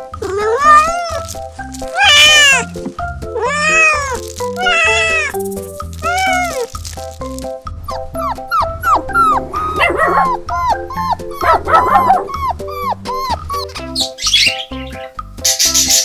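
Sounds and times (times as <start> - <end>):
background music: 0.0 - 16.0
dog yelping: 0.2 - 2.7, 3.4 - 5.4, 6.0 - 6.7, 7.8 - 14.9.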